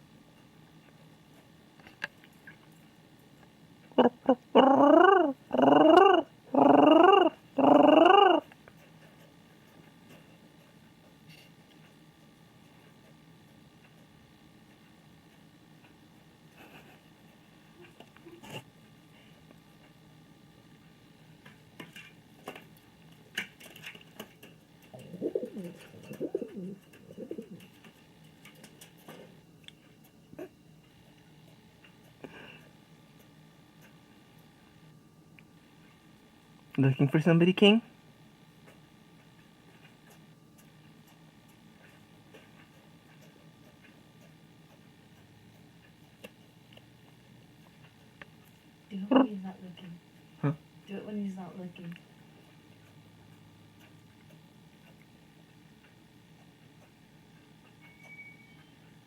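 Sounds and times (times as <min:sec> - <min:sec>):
pigeon cooing: 0:04.0 - 0:08.5, 0:24.9 - 0:27.8, 0:49.1 - 0:49.4.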